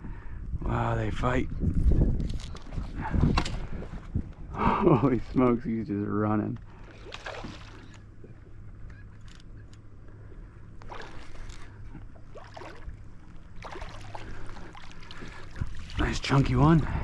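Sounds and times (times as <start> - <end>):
water splashing around a kayak: 6.7 - 8.4, 10.7 - 16.9.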